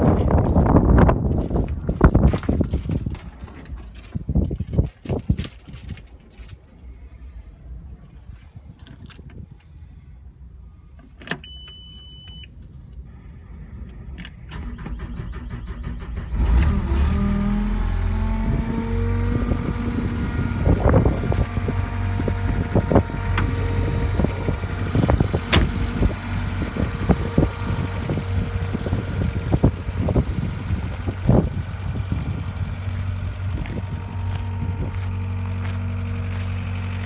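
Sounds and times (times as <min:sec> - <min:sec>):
diesel engine starting and running: 0:00.0 - 0:06.0, 0:10.3 - 0:37.0
short single-tone beep: 0:11.4 - 0:12.5.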